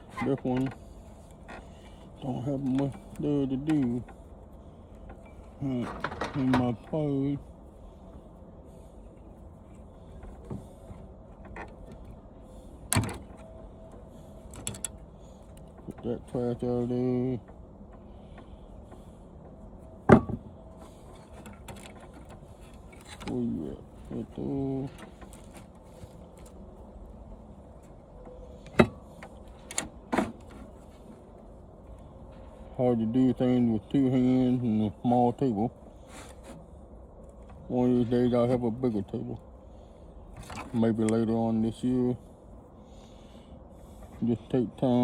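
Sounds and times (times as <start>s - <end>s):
parts and wires rattling: 0.0s - 39.4s
low steady hum: 0.0s - 45.0s
hard parts clinking together: 5.3s - 6.8s
small ticks and rustling: 20.6s - 32.7s.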